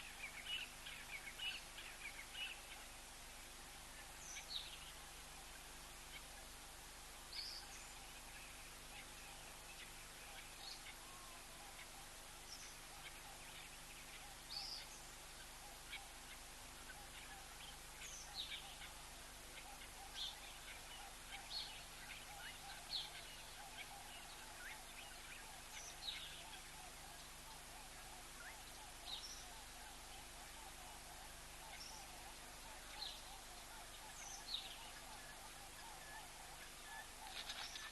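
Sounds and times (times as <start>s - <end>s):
background hiss: 0.0s - 37.9s
small birds chirping: 0.0s - 37.9s.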